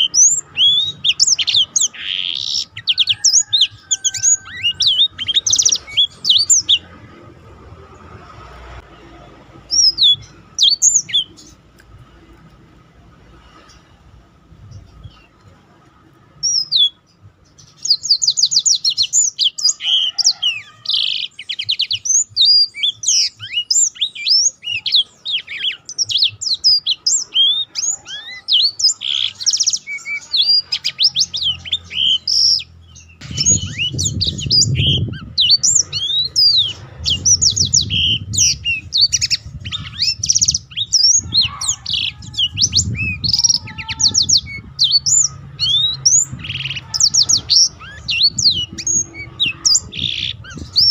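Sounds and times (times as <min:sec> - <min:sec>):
canary singing rolling trills: 0:00.0 - 0:12.3, 0:16.0 - 0:50.9
low rumble: 0:33.2 - 0:50.8.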